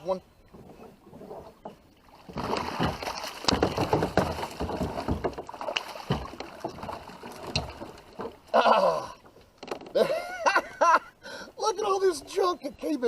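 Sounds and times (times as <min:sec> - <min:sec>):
water splashing: 0:00.0 - 0:10.0
knocking and rustling branches: 0:00.5 - 0:10.0.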